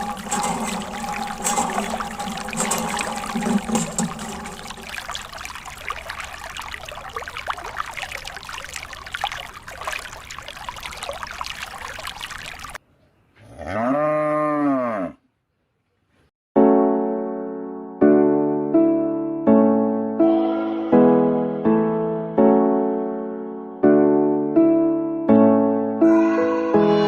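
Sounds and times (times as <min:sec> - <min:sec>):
piano music: 0:00.0 - 0:06.7, 0:16.6 - 0:27.0
water pouring and trickling: 0:00.0 - 0:12.8
cow mooing: 0:13.4 - 0:15.2.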